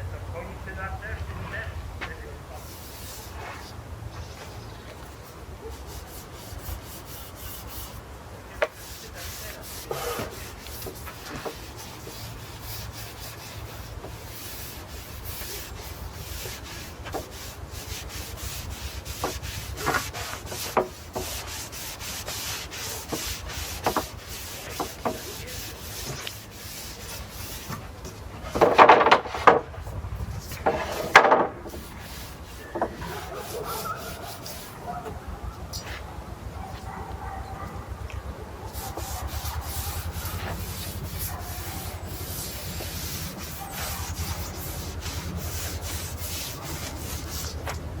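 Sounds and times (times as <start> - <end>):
brush strokes on wood: 1.4 - 28.6, 30.3 - 35.0, 38.7 - 47.8
scraping: 6.1 - 34.9, 38.7 - 47.8
steady low hum: 29.6 - 32.7.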